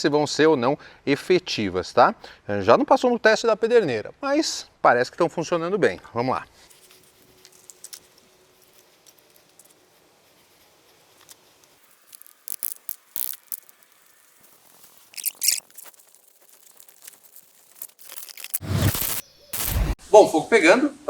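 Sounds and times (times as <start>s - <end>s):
kindling crackling and snapping: 6.7s - 20.0s.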